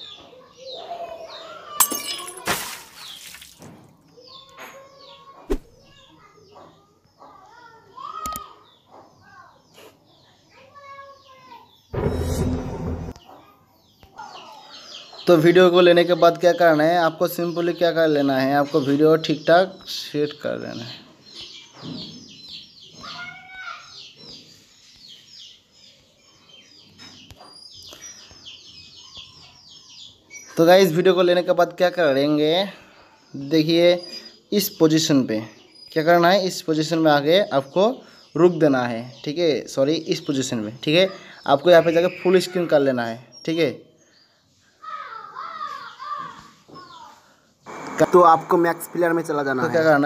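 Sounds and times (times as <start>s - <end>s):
small birds chirping: 0.0s - 12.0s, 13.1s - 50.0s
rushing noise: 47.7s - 50.0s.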